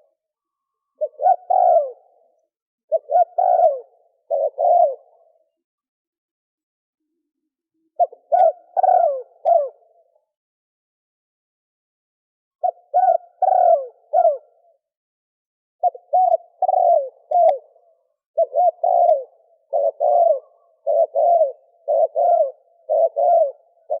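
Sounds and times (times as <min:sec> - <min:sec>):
dove cooing: 0:01.0 - 0:05.6, 0:07.9 - 0:10.1, 0:12.6 - 0:14.8, 0:15.8 - 0:24.0.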